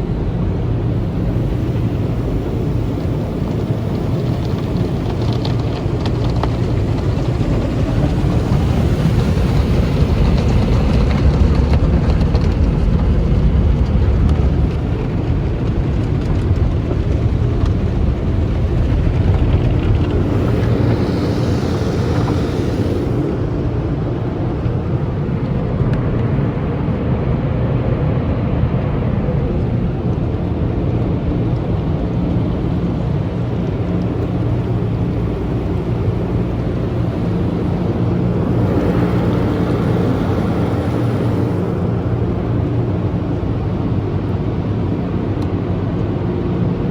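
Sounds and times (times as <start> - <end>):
car wash brushes and water rumble: 0.0 - 46.9
bright hiss: 20.1 - 24.0, 35.6 - 42.8.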